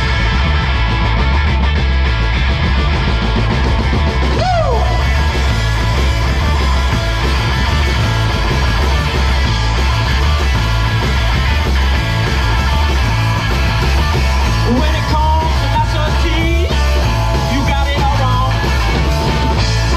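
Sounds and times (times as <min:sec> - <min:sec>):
electric guitar: 0:00.0 - 0:19.9
live rock band playing: 0:00.0 - 0:19.9.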